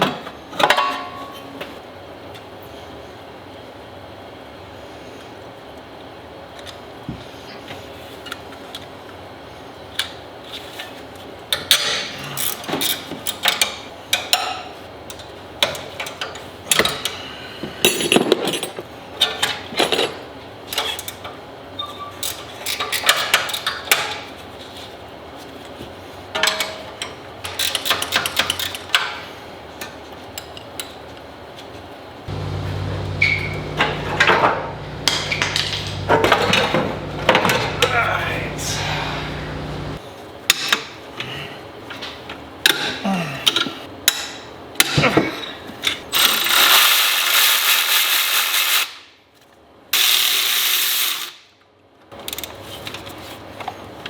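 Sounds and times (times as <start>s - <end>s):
metal tools clanking: 32.3s - 40.0s
steady low hum: 32.3s - 40.0s.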